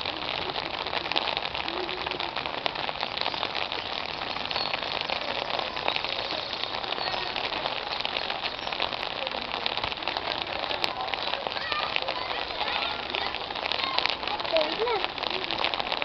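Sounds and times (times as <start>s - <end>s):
steady rain pattering: 0.0s - 16.0s.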